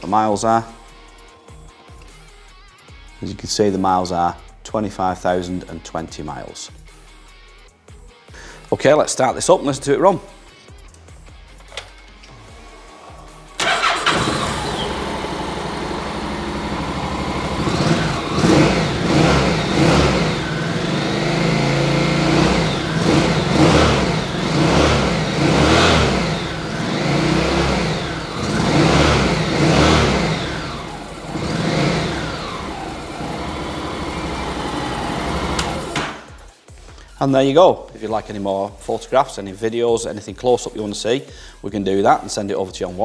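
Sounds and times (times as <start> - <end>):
motorcycle engine idling and revving: 13.5 - 36.5
motorcycle engine starting: 13.6 - 36.5.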